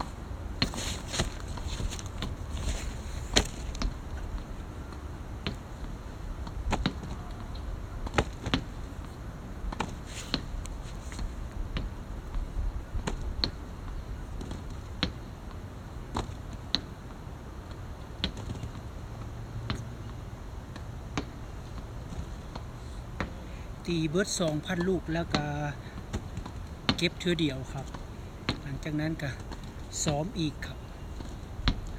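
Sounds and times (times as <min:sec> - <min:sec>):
low steady hum: 0:00.0 - 0:31.9.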